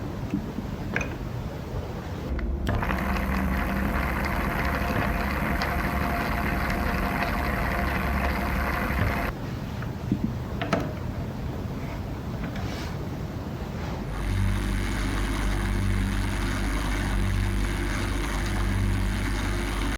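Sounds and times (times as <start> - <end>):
motor and plastic gears whirring: 2.4 - 9.3, 14.1 - 19.9.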